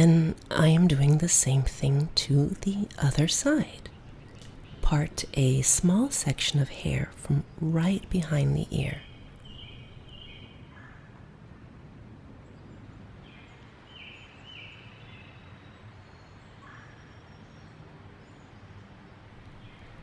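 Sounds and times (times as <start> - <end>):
low background rumble: 0.0 - 13.5.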